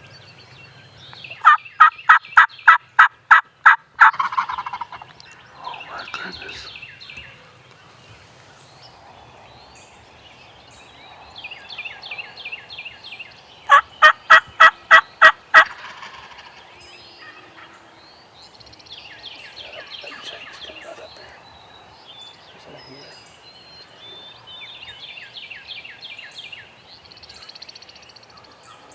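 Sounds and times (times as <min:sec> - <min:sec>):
turkey yelps: 0:01.4 - 0:05.0, 0:13.7 - 0:16.6
distant turkey gobbles: 0:01.4 - 0:08.7, 0:13.7 - 0:17.9, 0:19.3 - 0:22.4.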